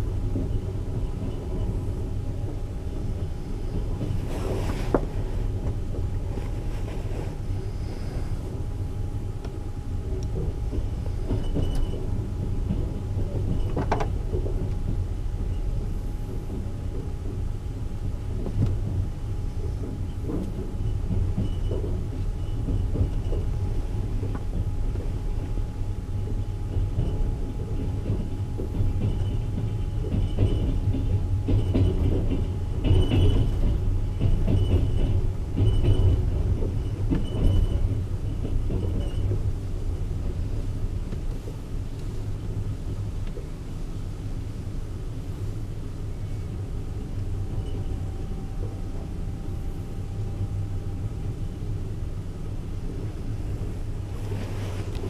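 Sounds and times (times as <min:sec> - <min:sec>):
train wheels rumbling on rails: 0:00.0 - 0:55.0
knocks and rattles: 0:26.3 - 0:39.5.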